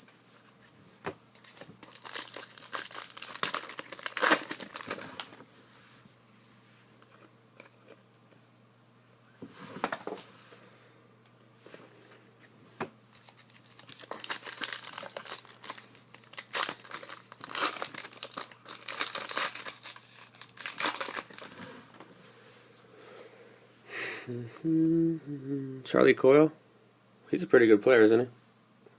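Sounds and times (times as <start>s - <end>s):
plastic wrapper crinkling: 1.4s - 5.4s, 13.1s - 21.6s.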